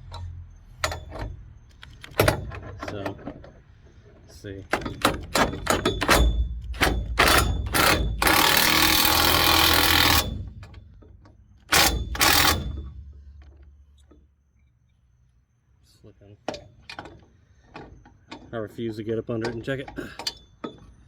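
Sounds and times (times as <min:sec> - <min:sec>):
impact wrench hammering a bolt: 0:04.7 - 0:11.1, 0:11.7 - 0:14.1.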